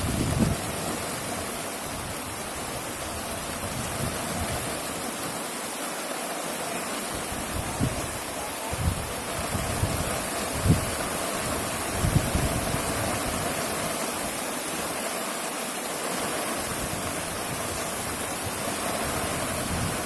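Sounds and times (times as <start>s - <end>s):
wind buffeting microphone: 0.0s - 4.9s, 7.2s - 13.9s, 16.6s - 20.0s
strong wind blowing: 0.0s - 5.0s, 7.1s - 14.3s, 16.6s - 20.0s.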